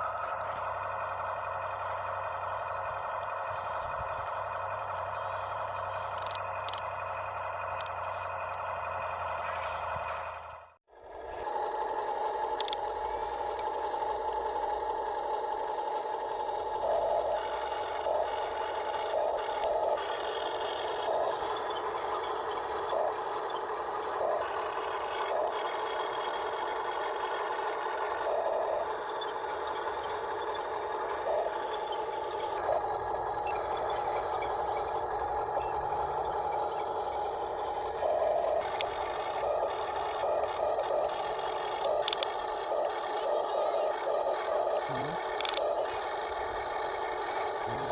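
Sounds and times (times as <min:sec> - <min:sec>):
toy truck motor whining: 0:00.0 - 0:47.9.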